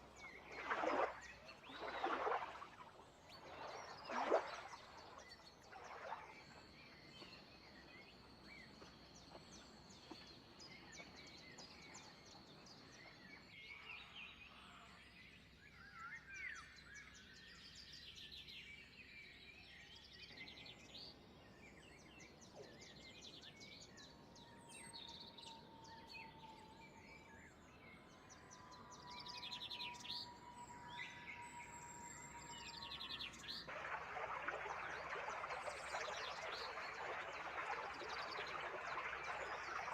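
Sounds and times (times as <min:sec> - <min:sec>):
birds chirping and trilling: 0:24.7 - 0:39.9.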